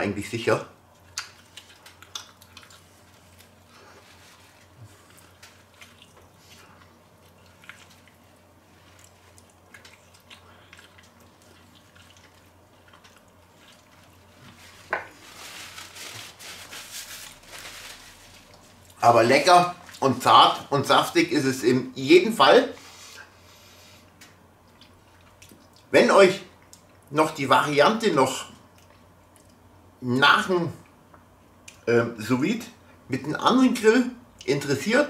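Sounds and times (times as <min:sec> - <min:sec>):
man chewing meat: 0:00.8 - 0:14.9, 0:23.0 - 0:25.9, 0:28.6 - 0:29.8
rustling handling: 0:13.9 - 0:18.8.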